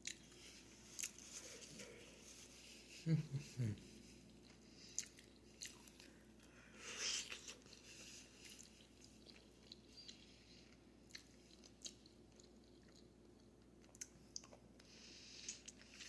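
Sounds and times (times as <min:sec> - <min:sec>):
wet chewing and biting: 0:04.4 - 0:06.2.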